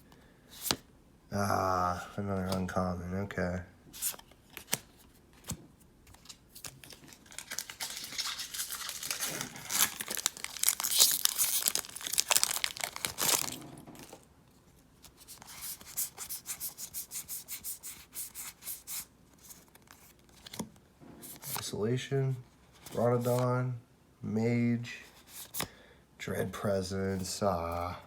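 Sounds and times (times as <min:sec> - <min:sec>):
wrapper tearing and crinkling: 0:06.6 - 0:14.2.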